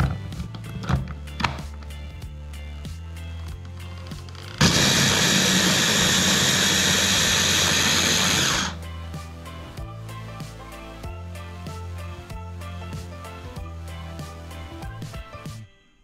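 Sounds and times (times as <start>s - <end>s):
hand blender chopping onions: 4.2s - 8.8s.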